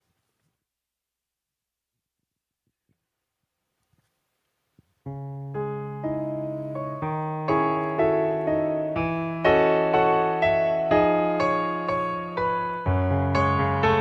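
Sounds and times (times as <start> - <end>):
piano chords: 5.1 - 14.0.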